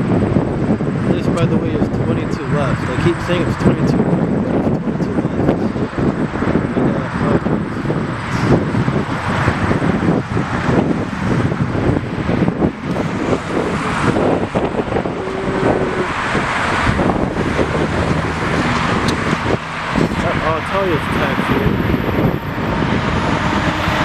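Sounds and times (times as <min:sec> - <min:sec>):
road traffic rumble: 0:00.0 - 0:24.0
wind buffeting microphone: 0:00.0 - 0:24.0.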